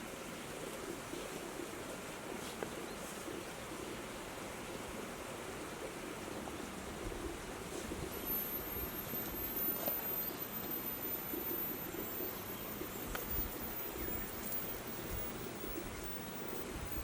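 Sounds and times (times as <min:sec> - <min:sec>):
steady hiss: 0:00.0 - 0:17.0
faint ticks: 0:08.1 - 0:17.0.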